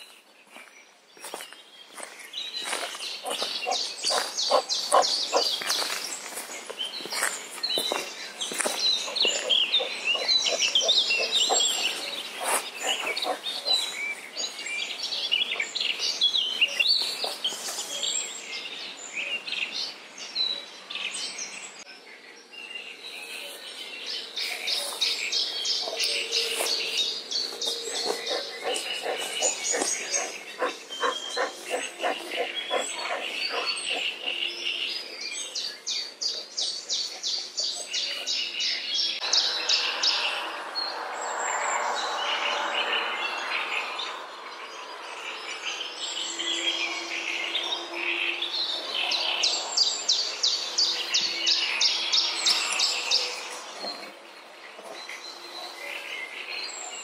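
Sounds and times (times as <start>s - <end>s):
songbirds singing trills: 0.0s - 57.0s.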